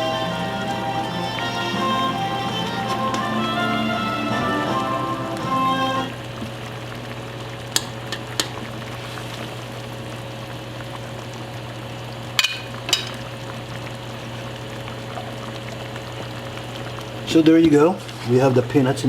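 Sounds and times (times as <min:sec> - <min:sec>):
sauce simmering in pot: 0:00.0 - 0:19.0
utensil clinking against pot: 0:12.4 - 0:13.2.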